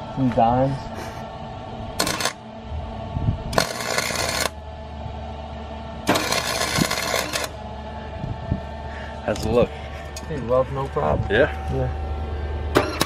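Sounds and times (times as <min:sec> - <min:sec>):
welding arc crackling: 0:02.0 - 0:02.4, 0:03.5 - 0:04.6, 0:06.0 - 0:07.6.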